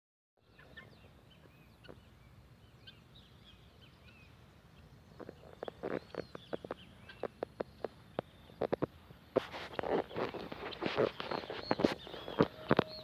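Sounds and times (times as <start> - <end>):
faint bird chirps: 0.4 - 13.0.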